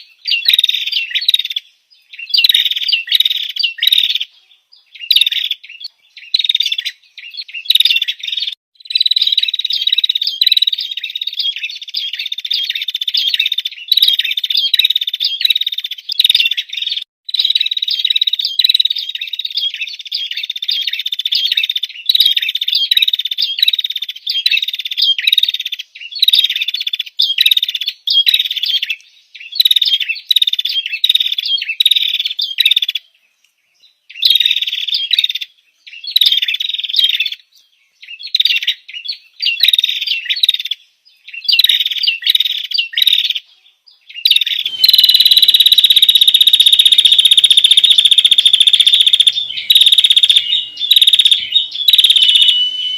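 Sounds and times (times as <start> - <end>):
bird rapid high chirps: 0.0 - 33.0, 34.1 - 37.4, 38.0 - 43.4, 44.1 - 52.9.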